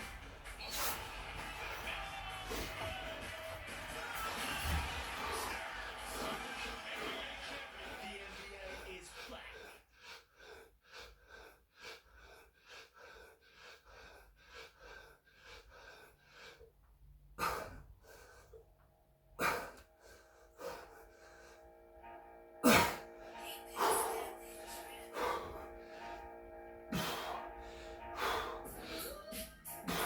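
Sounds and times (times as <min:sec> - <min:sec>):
man breathing hard: 0:00.0 - 0:21.9, 0:22.6 - 0:30.0.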